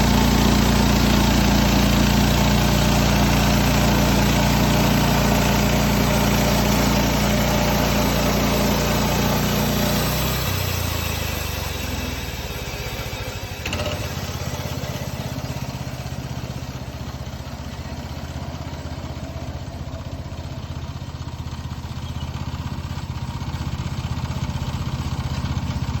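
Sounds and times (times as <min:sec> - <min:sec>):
bandsaw cutting wood: 0:00.0 - 0:12.4.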